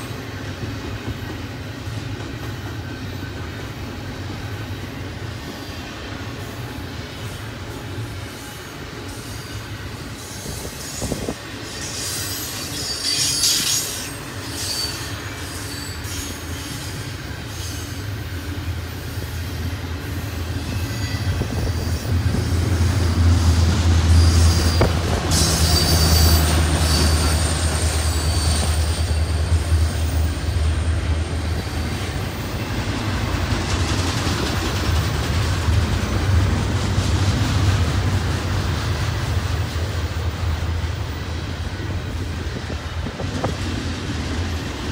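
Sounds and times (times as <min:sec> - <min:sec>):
train wheels rumbling and clattering: 0:00.0 - 0:44.9
high wheel squeal: 0:08.4 - 0:18.2, 0:20.1 - 0:22.5, 0:24.1 - 0:30.6.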